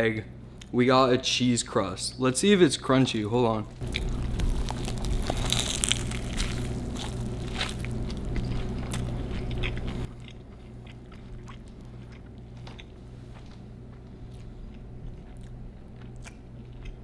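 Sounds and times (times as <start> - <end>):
low hum: 1.3 - 17.0
person chewing food: 3.7 - 17.0
soft crunches and mouth clicks: 3.7 - 17.0.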